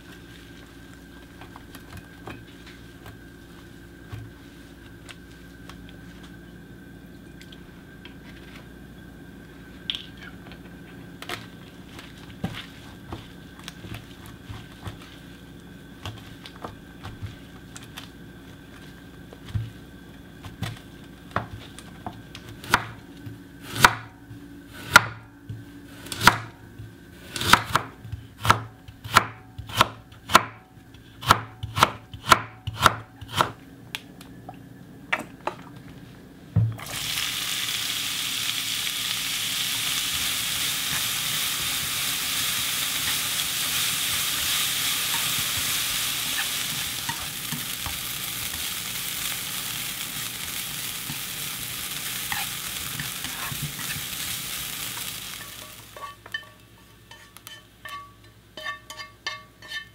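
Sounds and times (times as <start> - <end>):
faint steady hum: 0.0 - 59.9
knife chopping on cutting board: 24.8 - 26.5, 27.3 - 30.6, 31.2 - 33.6.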